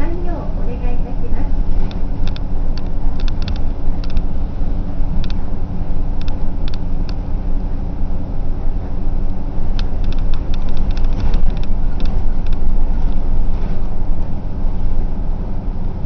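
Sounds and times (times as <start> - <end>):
bus engine and road rumble: 0.0 - 16.0
light clicks and rattles: 1.7 - 4.3, 5.2 - 5.4, 6.2 - 7.2, 9.7 - 13.8.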